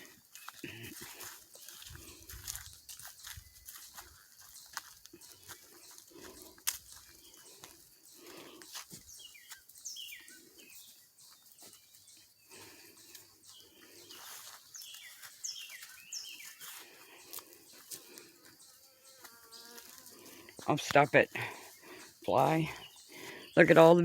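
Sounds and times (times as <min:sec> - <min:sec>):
faint bird chirps: 0:02.4 - 0:20.5.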